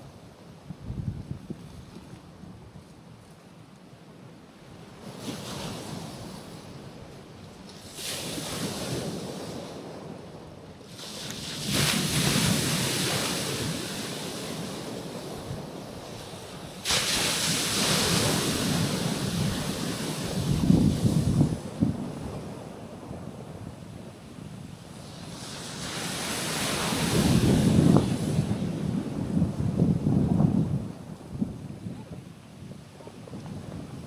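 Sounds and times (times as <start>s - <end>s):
waves washing onto rocky shore: 4.8s - 31.4s.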